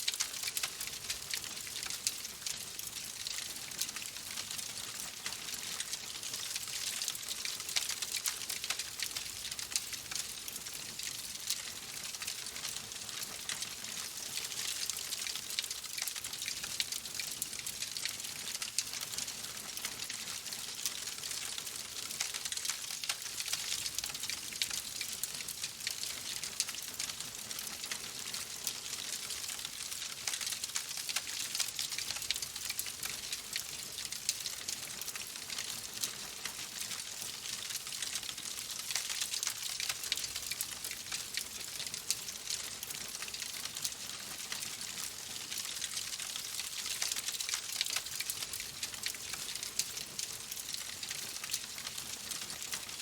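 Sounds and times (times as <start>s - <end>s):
wood fire crackling: 0.1s - 6.0s.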